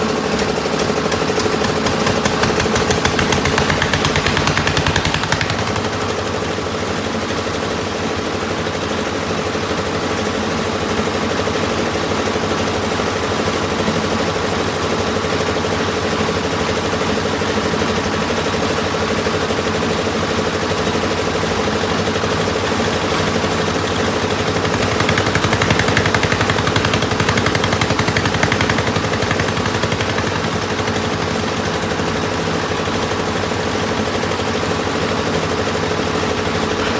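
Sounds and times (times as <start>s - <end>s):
piling machine engine rattling: 0.0s - 6.8s, 21.6s - 36.7s.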